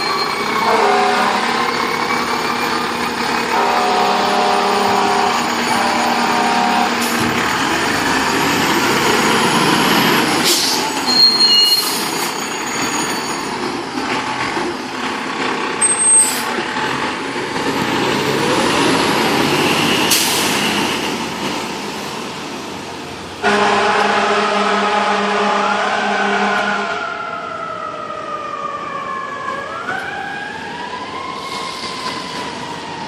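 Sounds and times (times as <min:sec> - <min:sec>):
diesel engines running: 0:00.0 - 0:33.0
air brakes hissing: 0:10.3 - 0:13.6, 0:19.7 - 0:21.1, 0:31.3 - 0:32.5.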